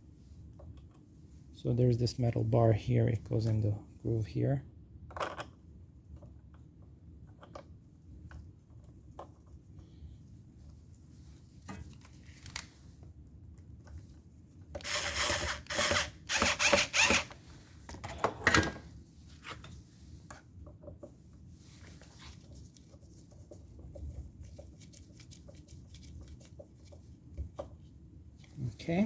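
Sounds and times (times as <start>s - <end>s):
scraping rattling of chainsaw parts: 14.8s - 17.4s.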